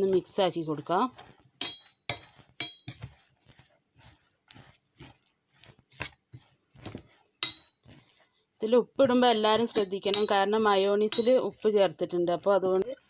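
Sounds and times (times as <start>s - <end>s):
spoon squishing food in bowl: 0.0s - 13.0s
spoon clinking against bowl: 1.6s - 3.0s, 7.4s - 7.8s, 9.6s - 10.5s, 11.1s - 11.6s.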